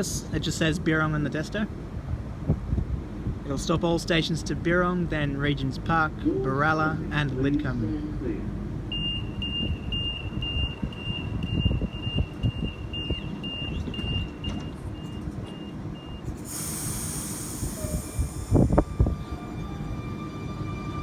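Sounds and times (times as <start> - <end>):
train rumble: 1.4 - 21.0
train door warning beeps: 8.9 - 20.0
air hiss: 16.3 - 19.2.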